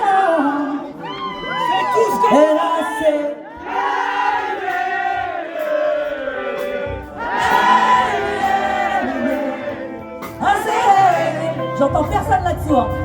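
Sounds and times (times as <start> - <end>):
live band music: 3.5 - 13.0
voices singing long held notes: 3.6 - 11.6.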